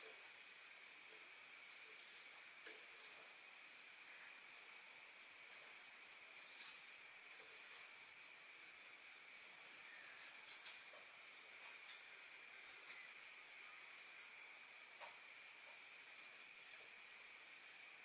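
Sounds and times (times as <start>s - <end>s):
thrush whistling calls: 6.1s - 7.8s, 9.3s - 10.7s, 12.7s - 13.7s, 16.2s - 17.4s.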